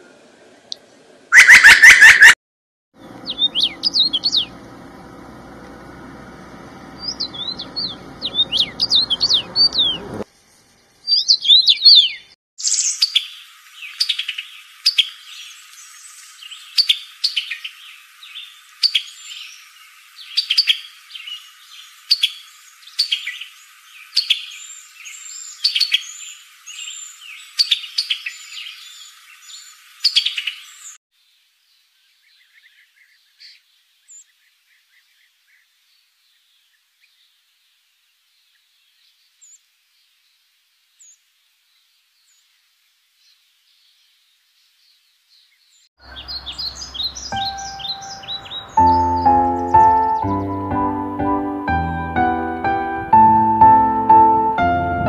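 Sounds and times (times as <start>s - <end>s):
birds chirping: 1.3s - 2.4s, 3.0s - 10.2s, 11.0s - 31.0s, 43.2s - 55.0s
repeated bird song with clicks: 3.2s - 4.6s, 7.0s - 10.2s, 20.2s - 23.5s, 46.1s - 50.7s.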